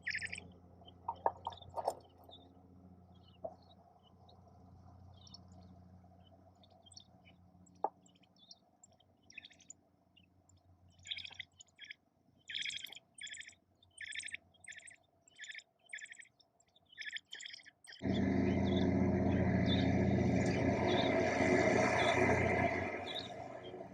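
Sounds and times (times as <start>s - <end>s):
baby birds chirping: 0.0s - 0.4s, 11.0s - 23.8s
loud rushing noise with hum: 18.0s - 23.9s.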